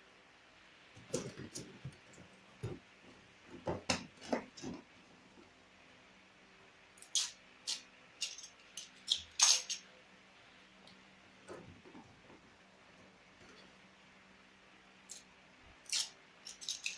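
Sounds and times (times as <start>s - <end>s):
items being handled: 0.9s - 5.5s.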